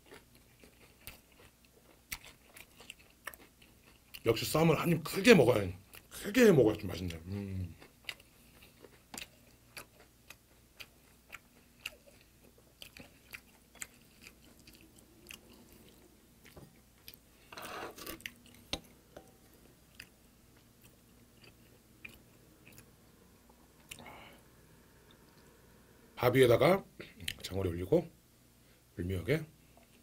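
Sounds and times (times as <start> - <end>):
close chewing with wet mouth clicks: 0.0 - 4.3, 7.0 - 17.2.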